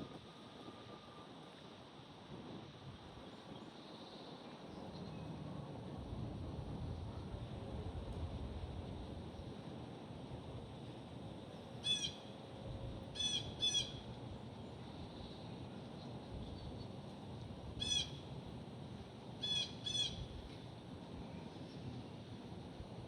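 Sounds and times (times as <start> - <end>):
bird giving harsh calls: 11.8 - 12.2, 13.2 - 14.0, 17.8 - 18.2, 19.4 - 20.2.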